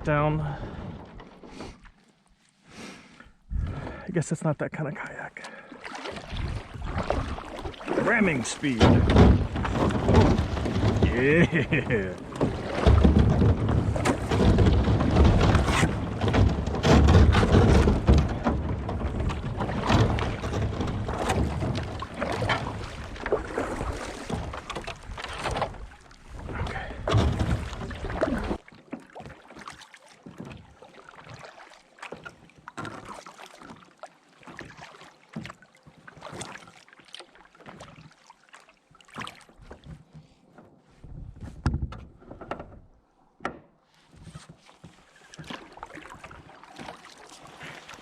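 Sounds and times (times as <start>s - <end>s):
kayak crunching through ice: 5.9s - 38.4s, 44.0s - 48.0s.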